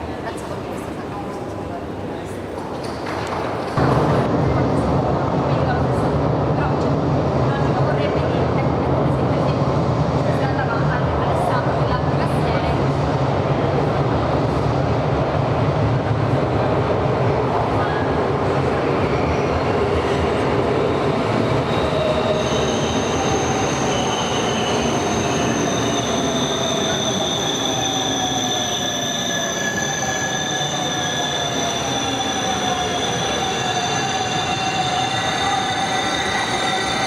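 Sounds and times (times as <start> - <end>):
high squeal of train brakes: 21.4 - 37.0.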